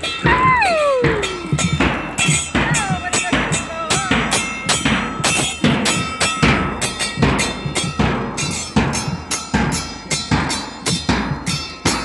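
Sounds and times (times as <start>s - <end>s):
drum hits: 0.0s - 12.0s.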